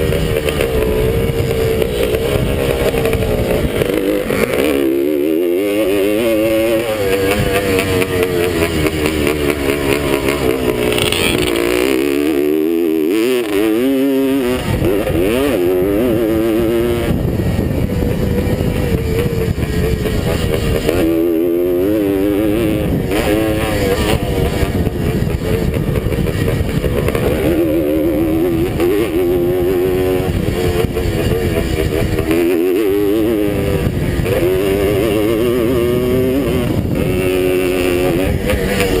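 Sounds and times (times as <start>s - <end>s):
two-stroke motorcycle engine revving: 0.0s - 39.0s
wind rumble on microphone: 0.0s - 39.0s.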